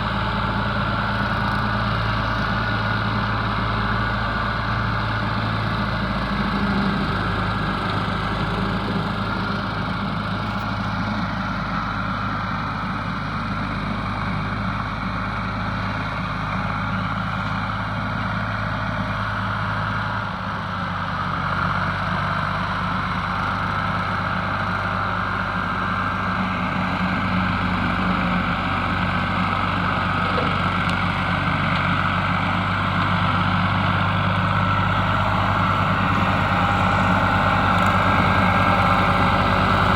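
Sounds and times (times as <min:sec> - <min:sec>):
tractor engine running: 0:00.0 - 0:39.9
rotary cutter mowing brush: 0:29.4 - 0:32.1.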